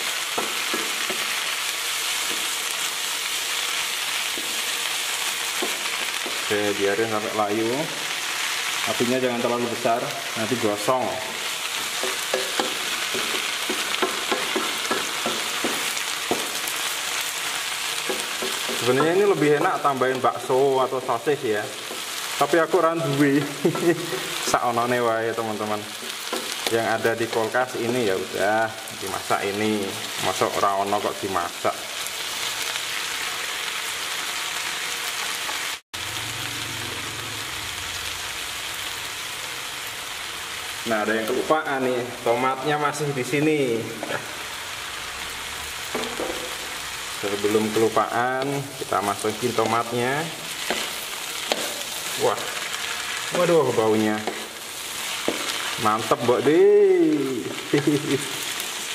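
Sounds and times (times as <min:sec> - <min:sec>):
food sizzling in a pan: 0:00.0 - 0:58.9
spatula scraping a pan: 0:50.5 - 0:53.2.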